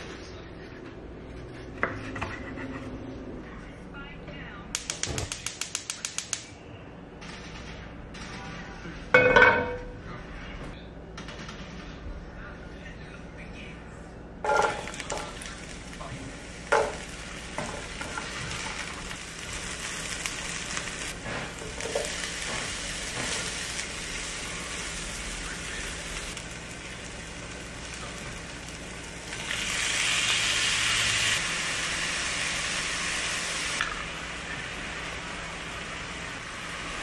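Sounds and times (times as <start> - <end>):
food sizzling in oil: 14.5 - 37.0.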